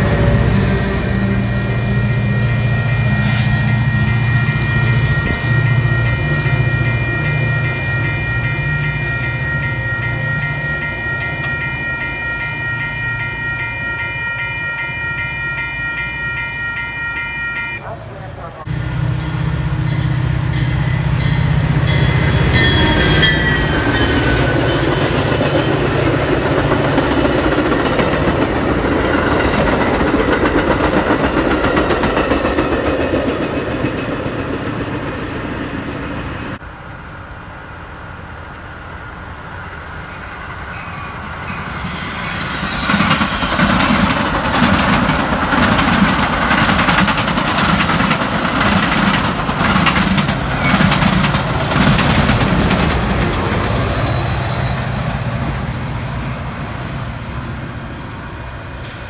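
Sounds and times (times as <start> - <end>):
diesel locomotive engine: 0.0 - 59.0
train wheels on rails: 0.0 - 59.0
wheels clicking over rail joints: 44.5 - 53.8.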